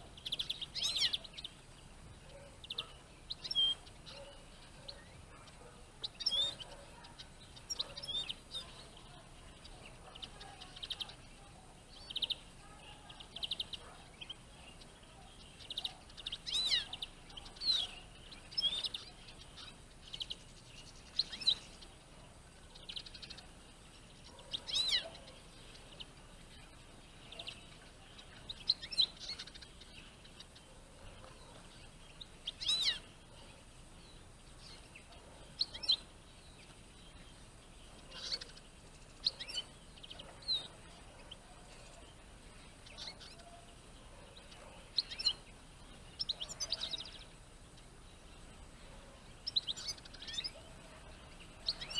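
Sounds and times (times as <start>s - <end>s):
birds chirping and whistling: 0.0s - 51.9s.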